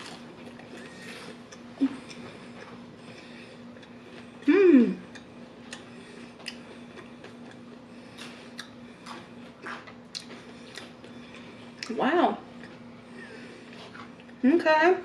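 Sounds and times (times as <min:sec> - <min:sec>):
faint steady hum: 0:00.0 - 0:15.0
person humming mm: 0:04.4 - 0:05.0
wet mouth clicks from chewing: 0:05.1 - 0:10.9.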